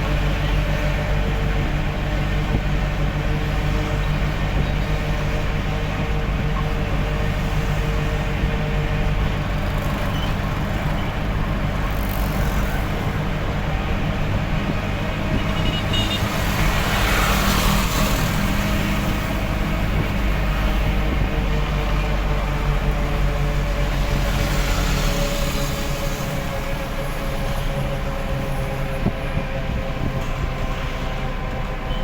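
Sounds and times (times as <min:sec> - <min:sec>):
road noise: 0:00.0 - 0:32.0
truck engine running: 0:00.0 - 0:32.0.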